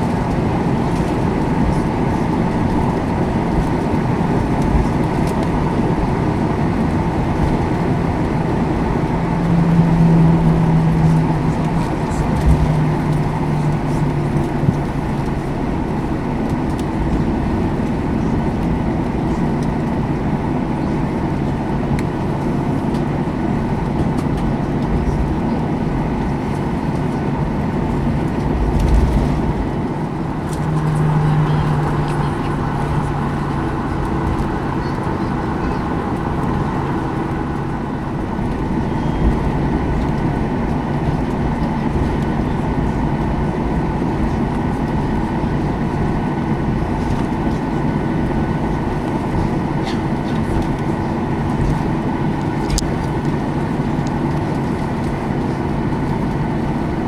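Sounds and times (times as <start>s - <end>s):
airplane cabin engine hum: 0.0s - 57.0s.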